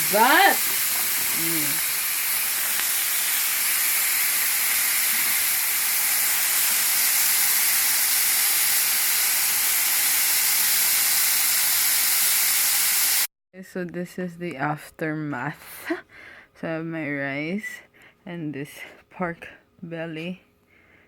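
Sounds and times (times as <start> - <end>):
pork sizzling on a grill: 0.0 - 13.3.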